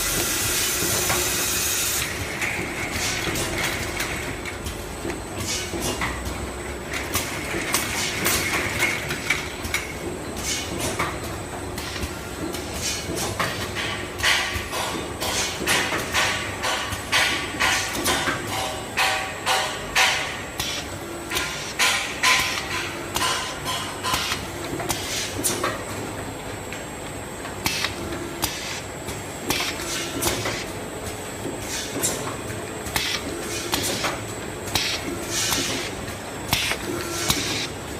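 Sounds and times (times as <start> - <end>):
machine clacks: 2.0 - 25.8
steady machine hum: 13.8 - 37.9.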